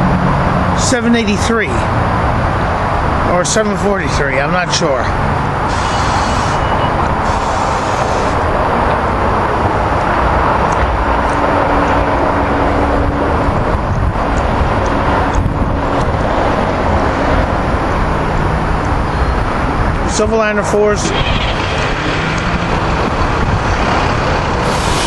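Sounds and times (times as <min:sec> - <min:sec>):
train wheels rushing on rail: 0:21.0 - 0:25.0.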